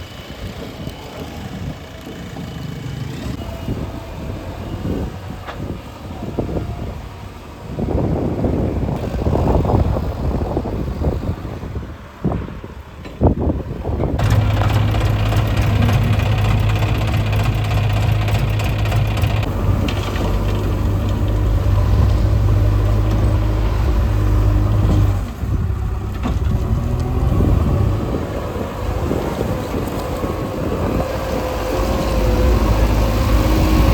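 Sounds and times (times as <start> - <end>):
diesel engine running: 13.9 - 33.9
low uneven rumble: 13.9 - 33.9.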